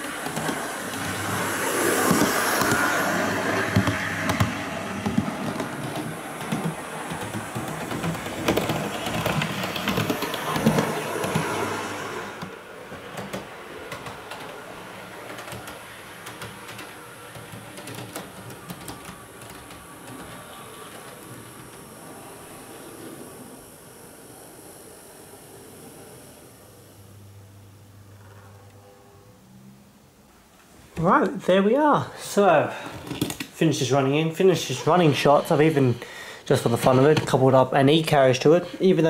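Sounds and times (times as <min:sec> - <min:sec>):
model train motor hum: 0:00.0 - 0:27.3.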